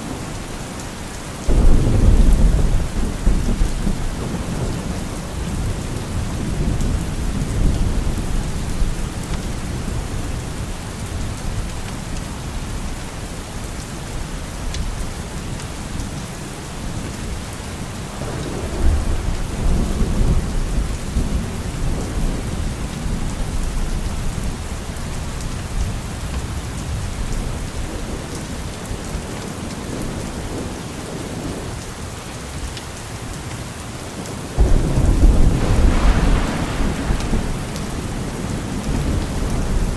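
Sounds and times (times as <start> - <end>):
steady rain: 0.0 - 39.9
rolling thunder: 1.5 - 10.4, 18.1 - 24.6, 34.6 - 39.9.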